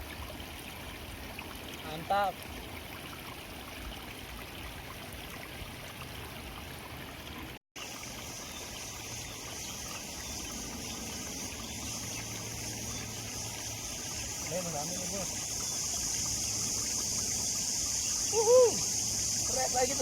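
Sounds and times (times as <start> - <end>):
stream water trickling: 0.0 - 20.0
steady high hiss: 8.2 - 20.0.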